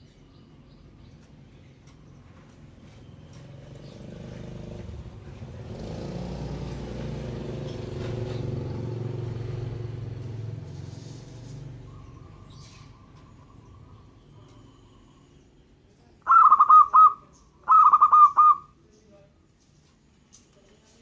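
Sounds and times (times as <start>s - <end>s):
vehicle engine passing by: 2.7s - 15.2s.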